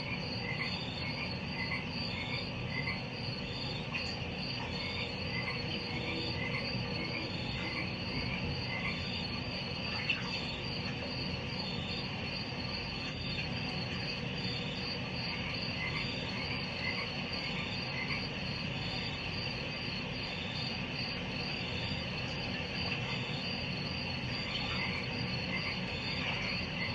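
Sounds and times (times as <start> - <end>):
frogs calling: 0.0 - 26.9
insects chirping: 0.0 - 26.9.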